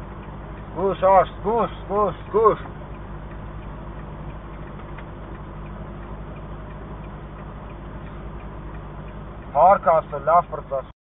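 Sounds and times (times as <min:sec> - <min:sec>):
vehicle engine running: 0:00.0 - 0:10.9
fast even ticking: 0:00.1 - 0:10.8.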